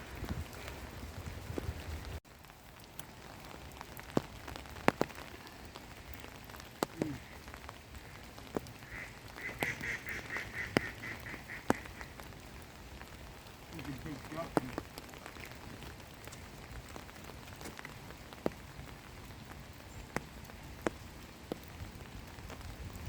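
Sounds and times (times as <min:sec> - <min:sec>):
rain falling: 0:00.0 - 0:23.0
bird rapid repeated calls: 0:08.8 - 0:12.1.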